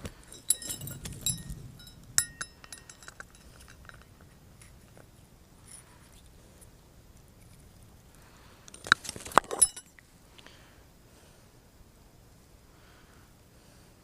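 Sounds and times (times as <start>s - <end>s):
light metallic clicks and clinks: 0.2s - 5.0s, 8.7s - 10.1s.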